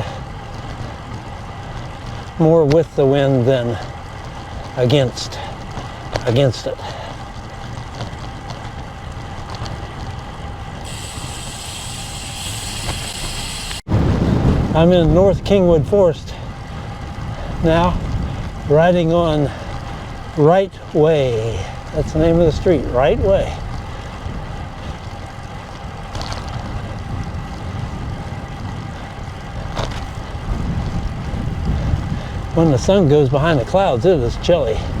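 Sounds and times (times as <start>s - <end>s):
bike tyre road noise: 0.0s - 35.0s
wind buffeting microphone: 0.0s - 35.0s
high steady hiss: 10.8s - 13.8s.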